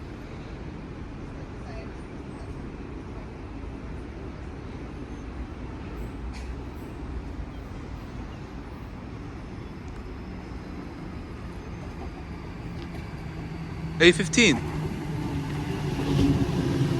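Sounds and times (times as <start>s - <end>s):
electric train low rumble: 0.0s - 16.9s.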